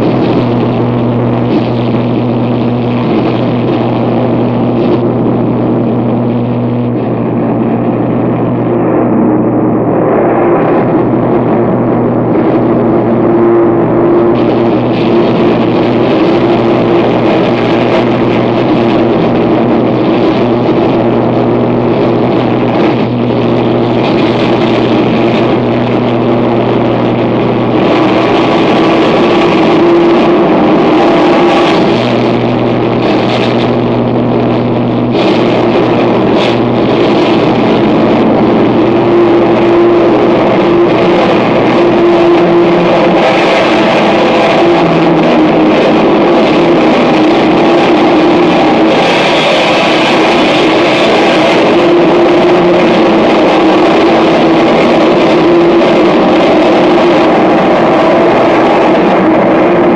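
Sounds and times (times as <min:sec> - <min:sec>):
low droning tones: 0:00.0 - 0:59.9
wall of distorted noise: 0:00.0 - 0:59.9.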